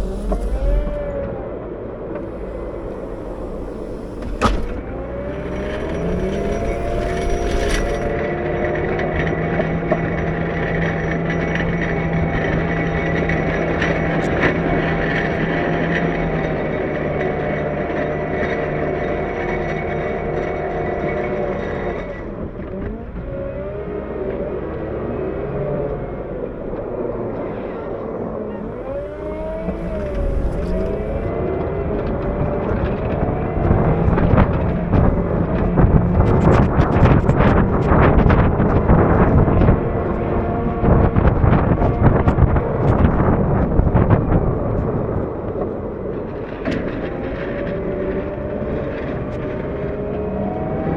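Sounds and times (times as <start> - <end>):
diesel engine running steadily: 0.0 - 9.1, 28.4 - 31.4
sharp knocks and clatter: 2.2 - 8.2.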